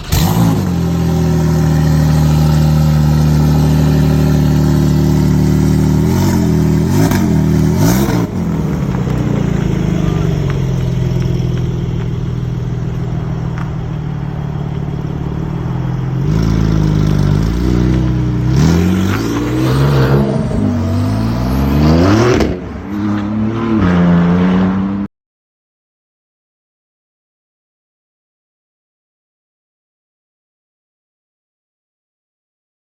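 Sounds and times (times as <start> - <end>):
sports car engine revving: 0.0 - 25.1.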